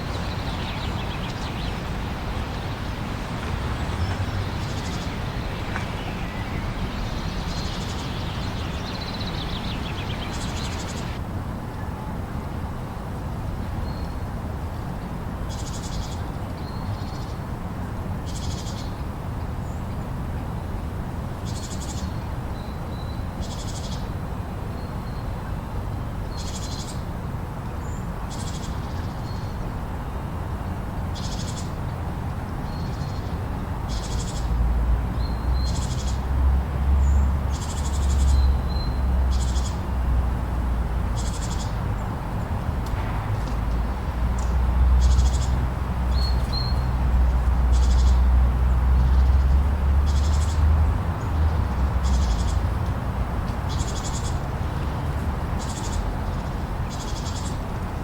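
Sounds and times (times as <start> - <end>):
low wind gusts buffeting: 0.0 - 11.2.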